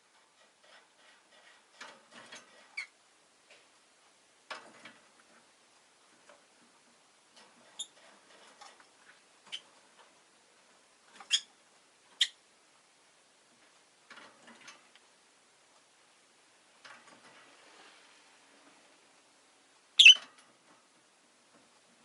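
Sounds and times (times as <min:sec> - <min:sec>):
lovebird chirping: 0:11.3 - 0:11.5, 0:12.2 - 0:12.4, 0:20.0 - 0:20.2.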